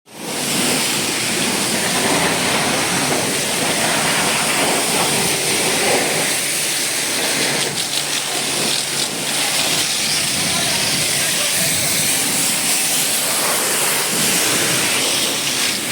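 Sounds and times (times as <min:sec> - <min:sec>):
high-pressure water spray on vehicle: 0:00.1 - 0:15.9.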